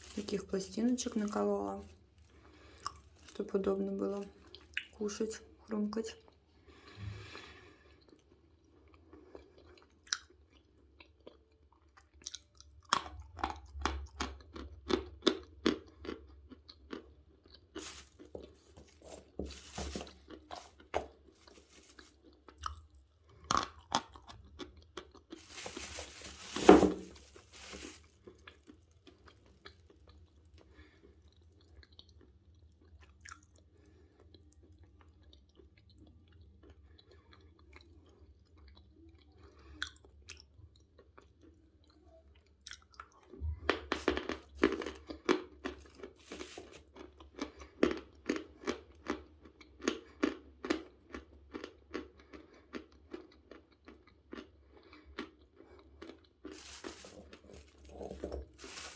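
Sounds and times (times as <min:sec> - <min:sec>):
soft chewing: 0:00.0 - 0:05.0, 0:06.2 - 0:58.9
chalk crunching: 0:17.8 - 0:22.4, 0:25.3 - 0:28.3, 0:45.8 - 0:46.9, 0:56.5 - 0:58.9.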